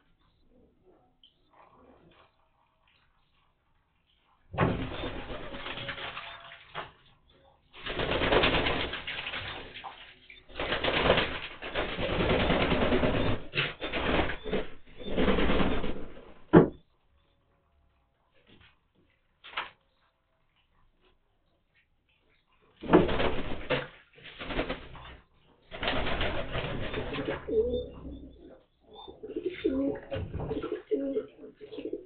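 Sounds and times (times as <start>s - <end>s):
birds splashing in water: 4.6s - 7.1s, 7.7s - 16.2s.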